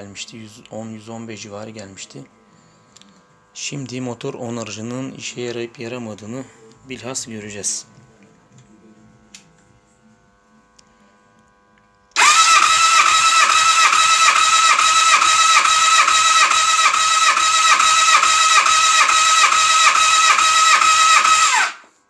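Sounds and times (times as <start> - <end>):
engine starter whine pulsing: 12.2 - 22.0.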